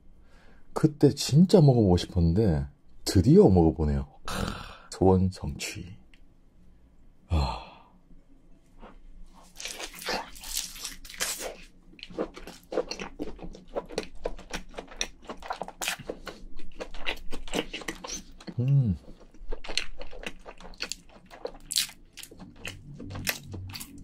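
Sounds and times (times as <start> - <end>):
wet smacking chewing: 9.4 - 24.0.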